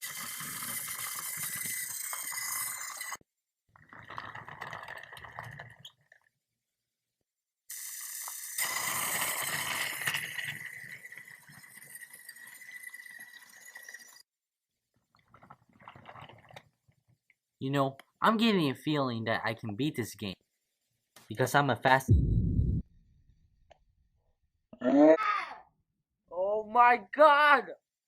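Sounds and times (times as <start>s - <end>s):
toy train motor whine: 0.0s - 3.2s, 7.7s - 14.3s
toy train wheels rattling: 0.0s - 3.2s, 7.7s - 14.3s.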